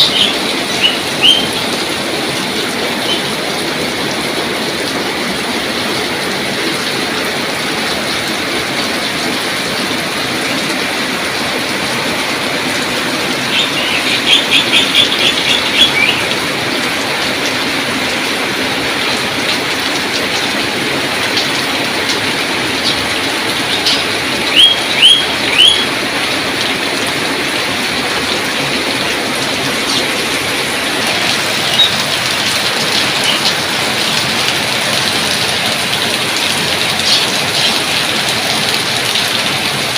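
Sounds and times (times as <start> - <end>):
bird chirping: 0.0 - 1.6, 13.5 - 16.3, 23.7 - 25.9
steady rain falling: 0.0 - 39.9.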